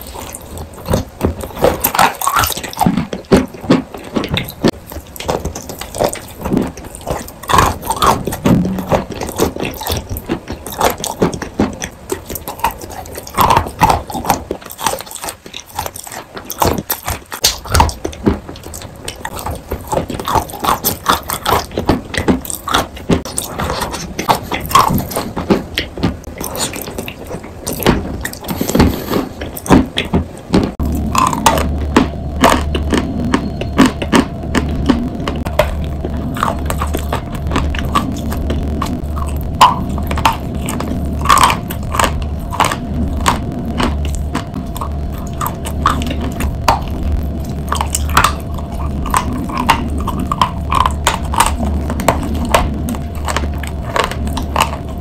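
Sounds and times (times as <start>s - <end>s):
steady low hum: 0.0s - 55.0s
wet crunchy chewing: 0.0s - 55.0s.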